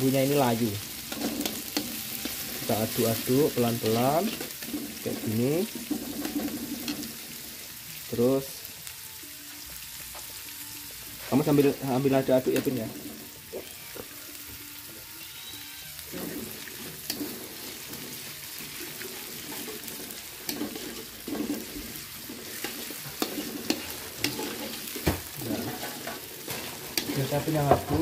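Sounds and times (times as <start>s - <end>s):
metal spatula scraping wok: 0.0s - 7.8s, 15.3s - 28.0s
food sizzling in hot oil: 0.0s - 28.0s.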